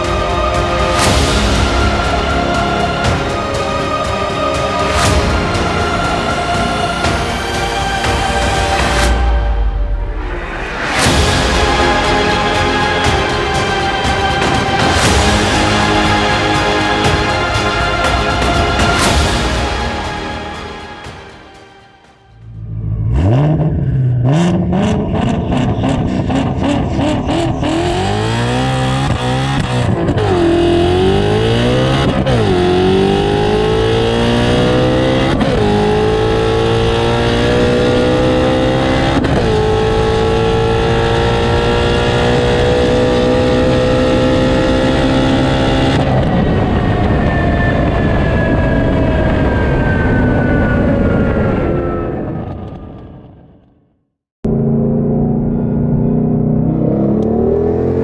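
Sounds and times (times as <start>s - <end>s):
car engine accelerating through gears: 22.9s - 51.0s, 54.5s - 58.0s.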